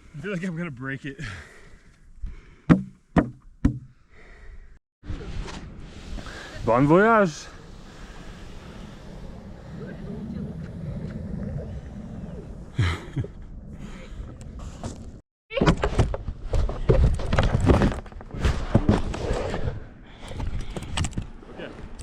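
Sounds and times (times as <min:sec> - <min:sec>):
plastic sled scraping down sand: 0:05.1 - 0:12.8.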